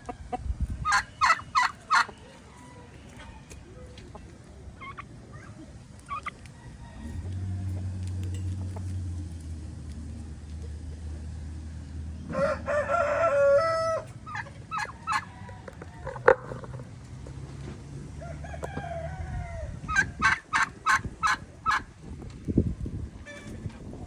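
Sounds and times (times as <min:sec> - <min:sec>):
poultry clucking: 0:00.0 - 0:09.0, 0:12.2 - 0:22.3
rooster crowing: 0:06.5 - 0:07.9, 0:12.3 - 0:14.1, 0:18.1 - 0:20.2.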